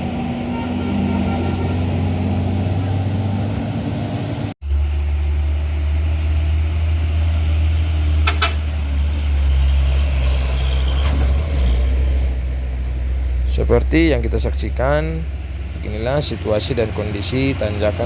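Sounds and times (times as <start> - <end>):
heavy truck engines rumbling: 0.0 - 18.0.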